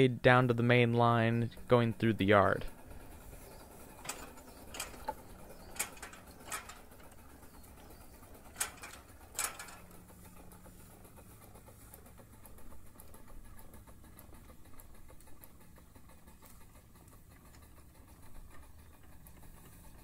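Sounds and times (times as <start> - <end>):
low steady hum: 0.0 - 20.0
faint mechanical clicks and knocks: 2.7 - 20.0.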